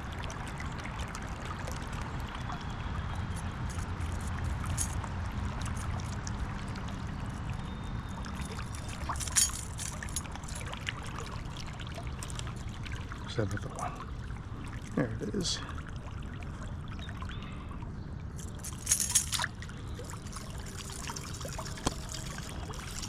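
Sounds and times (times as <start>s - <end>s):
creek water running: 0.0s - 17.7s, 18.4s - 23.0s.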